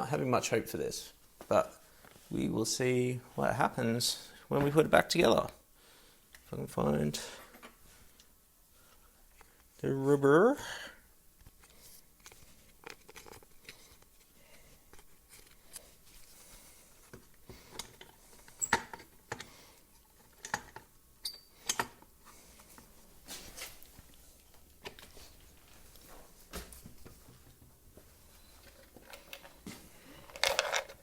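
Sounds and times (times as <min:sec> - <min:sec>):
tools clicking and tapping: 0:17.7 - 0:19.5, 0:20.2 - 0:22.1.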